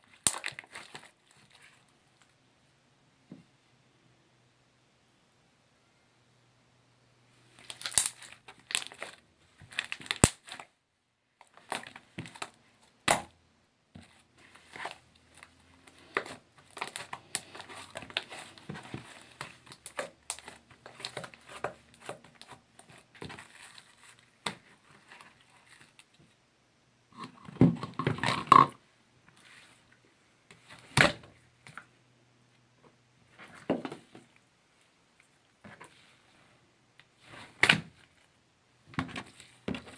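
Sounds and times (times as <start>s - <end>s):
slime crackling and squishing: 0.0s - 1.8s, 7.6s - 10.8s, 11.4s - 13.3s, 14.0s - 26.1s.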